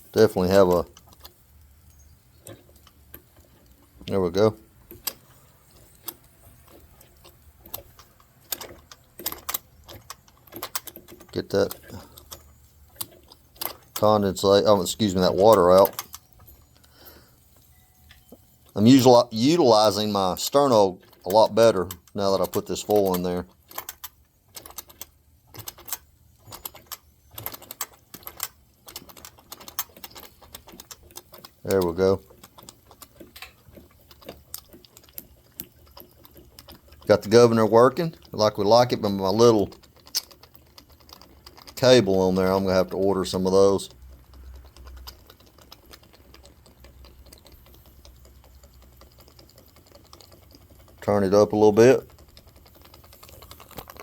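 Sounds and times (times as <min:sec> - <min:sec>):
model steam engine clattering: 0:05.8 - 0:16.2, 0:18.7 - 0:54.0.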